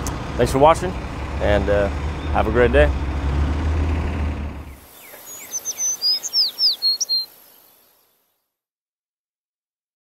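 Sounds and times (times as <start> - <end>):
low traffic rumble: 0.0 - 7.7
high bird chirps sliding down: 4.7 - 8.1.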